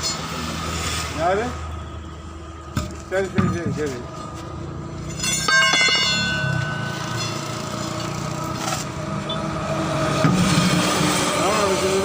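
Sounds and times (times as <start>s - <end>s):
sharp metallic clink ringing: 5.1s - 7.9s.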